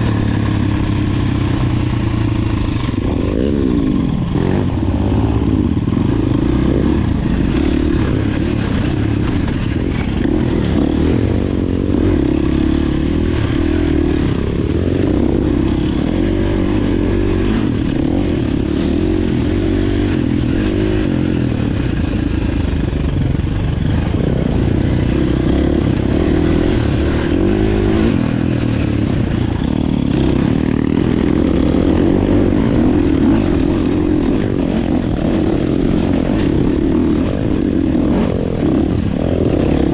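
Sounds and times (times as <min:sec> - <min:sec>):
dirt bike engine revving: 0:00.0 - 0:39.9
steady low rumble: 0:00.0 - 0:39.9.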